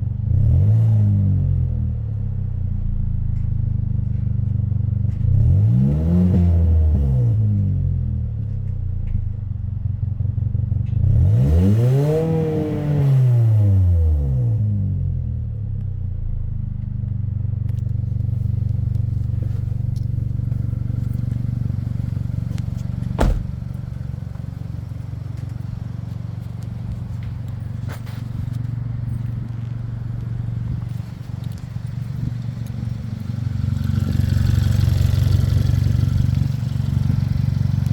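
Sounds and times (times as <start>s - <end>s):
car engine idling: 17.3s - 37.9s.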